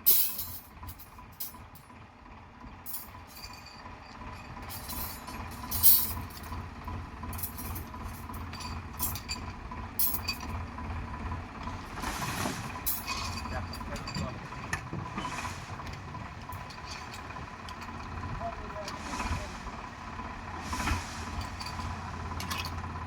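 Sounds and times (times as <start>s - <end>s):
tractor engine running: 0.0s - 23.0s
metallic clinks and scrapes: 0.1s - 1.6s, 2.9s - 6.5s, 7.3s - 10.5s, 12.6s - 18.0s, 21.2s - 22.8s.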